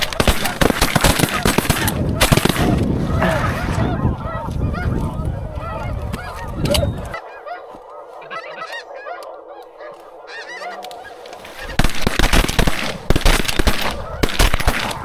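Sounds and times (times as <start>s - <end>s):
geese honking: 0.0s - 15.0s.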